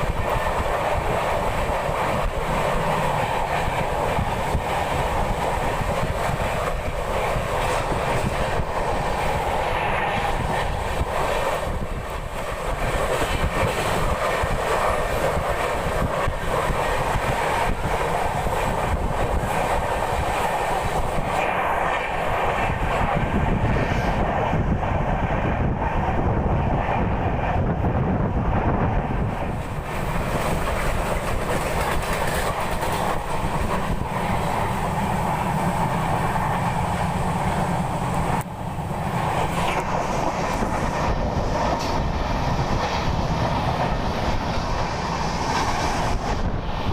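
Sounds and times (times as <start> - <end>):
train rumbling on track: 0.0 - 46.9
wheels clacking over rail joints: 29.4 - 46.3.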